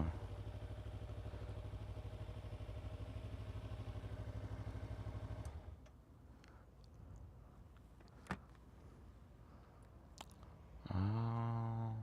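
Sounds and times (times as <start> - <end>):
motorcycle engine idling: 0.0 - 5.4.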